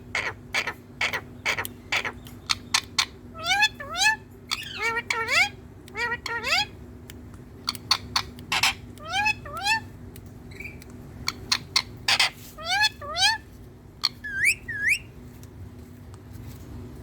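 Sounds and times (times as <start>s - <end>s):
parrot squawks: 0.1s - 6.8s, 7.8s - 9.9s, 11.3s - 13.4s, 14.0s - 15.1s
parrot clicks: 5.8s - 6.2s, 7.0s - 11.7s.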